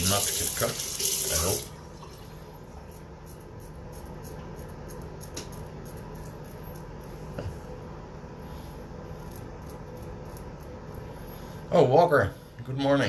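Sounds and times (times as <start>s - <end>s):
razor cutting stubble: 9.2s - 10.8s.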